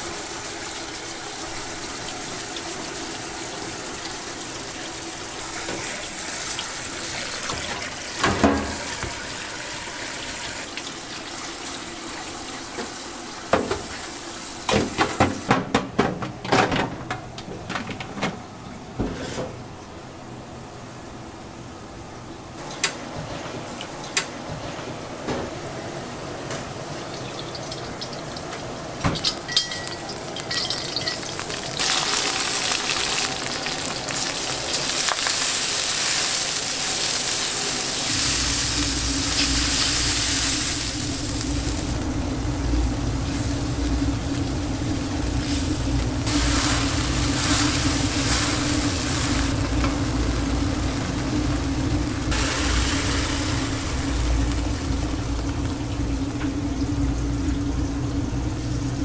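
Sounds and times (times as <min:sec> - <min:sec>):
sauce sizzling in a wok: 0:00.0 - 0:14.6, 0:30.0 - 0:58.8
water poured into wok: 0:30.0 - 0:42.0.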